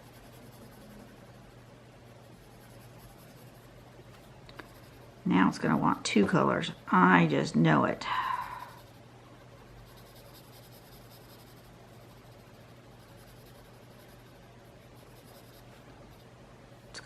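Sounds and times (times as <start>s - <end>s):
colouring scratching on paper: 0.0s - 3.9s, 4.6s - 6.0s, 8.0s - 9.1s, 9.7s - 16.3s.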